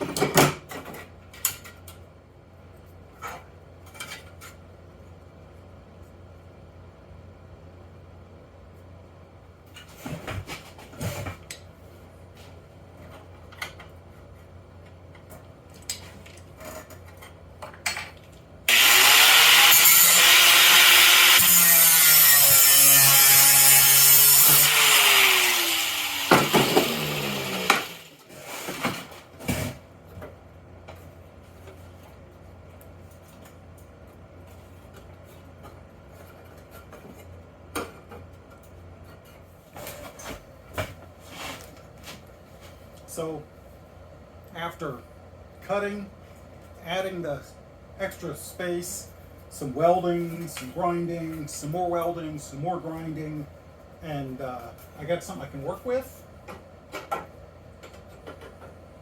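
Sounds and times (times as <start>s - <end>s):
power tool cutting metal: 18.7s - 28.2s.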